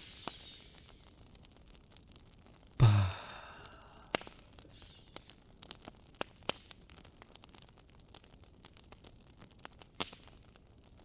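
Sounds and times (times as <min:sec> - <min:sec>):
fireplace crackling and popping: 0:00.0 - 0:11.0
man sighing: 0:02.8 - 0:05.4.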